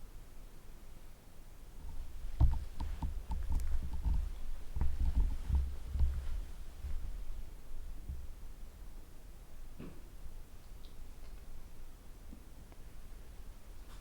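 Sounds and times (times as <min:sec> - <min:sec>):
low rumbling thumps: 0:01.8 - 0:08.5.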